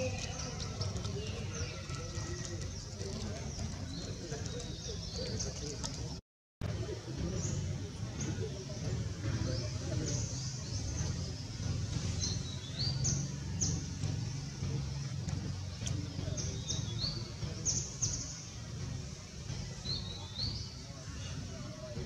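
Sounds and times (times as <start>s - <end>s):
small birds chirping: 0.0s - 22.0s
low background rumble: 6.8s - 22.0s.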